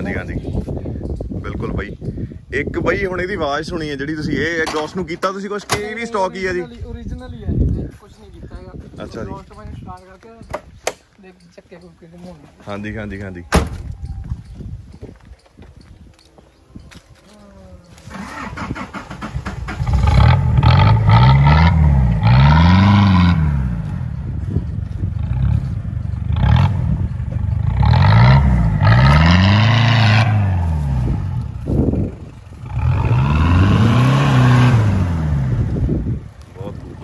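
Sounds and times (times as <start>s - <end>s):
diesel engine revving: 18.1s - 36.4s
car driving on loose dirt: 18.1s - 37.0s.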